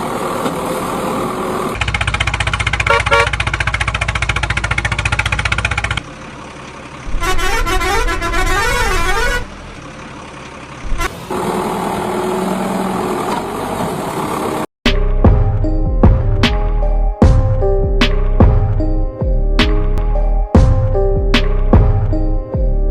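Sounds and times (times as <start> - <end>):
vehicle engine chugging: 0.0 - 13.0
warbling horn: 2.8 - 3.4, 7.1 - 9.6.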